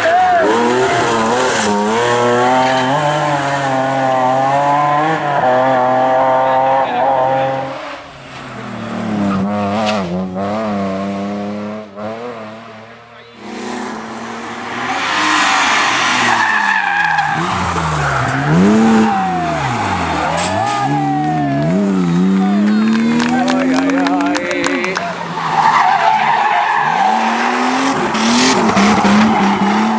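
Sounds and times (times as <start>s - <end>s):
tyres squealing and skidding: 0.0s - 10.6s, 13.3s - 29.9s
car engine revving: 0.0s - 29.9s.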